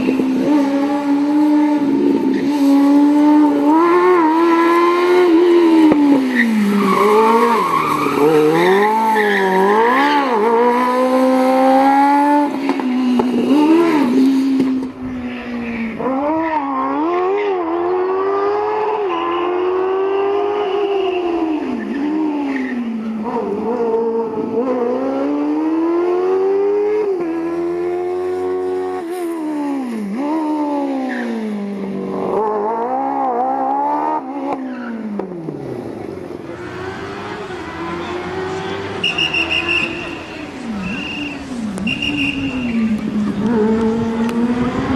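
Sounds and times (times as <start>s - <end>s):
car engine revving high: 0.0s - 15.2s, 23.2s - 31.0s, 35.2s - 44.9s.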